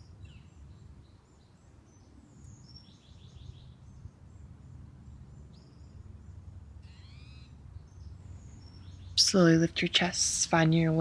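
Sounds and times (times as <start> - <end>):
faint birds calling: 6.8 - 10.0.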